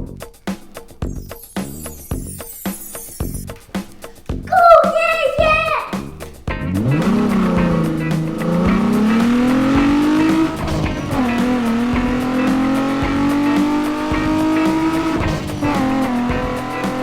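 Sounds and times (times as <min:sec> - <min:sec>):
background music with a beat: 0:00.0 - 0:05.2, 0:05.8 - 0:17.0
motorcycle engine revving: 0:06.1 - 0:17.0.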